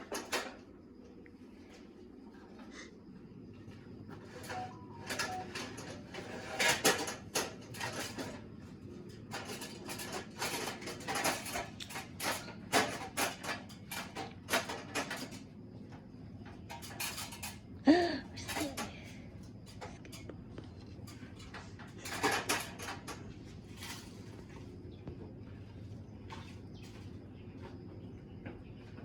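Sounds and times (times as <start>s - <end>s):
knocks clatter and scraping: 4.1s - 17.7s, 18.4s - 25.4s.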